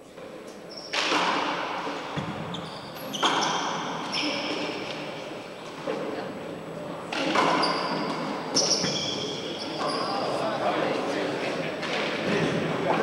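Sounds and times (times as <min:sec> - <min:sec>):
sneaker squeaks on court floor: 0:00.6 - 0:05.7, 0:07.2 - 0:10.4.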